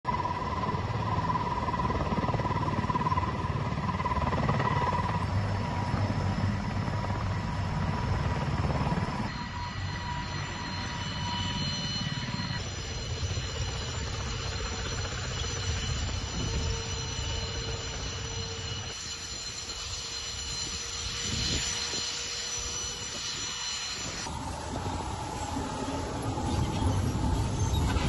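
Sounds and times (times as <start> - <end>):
helicopter rotor and engine: 0.0 - 28.0
high turbine whine: 0.1 - 28.0.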